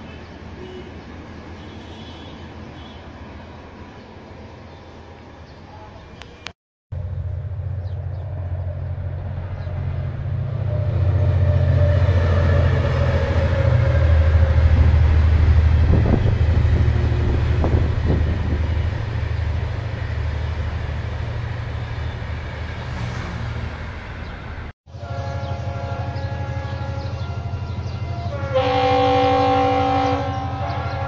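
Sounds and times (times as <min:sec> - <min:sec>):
passenger train passing: 0:00.0 - 0:31.0.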